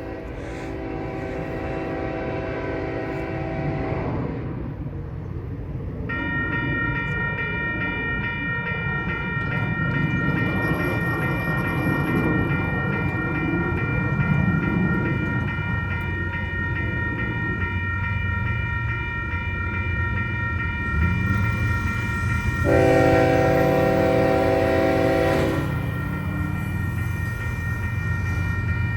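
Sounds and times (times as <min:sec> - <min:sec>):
locomotive horn: 0:00.0 - 0:04.5, 0:22.6 - 0:25.8
diesel locomotives rumbling: 0:00.0 - 0:28.9.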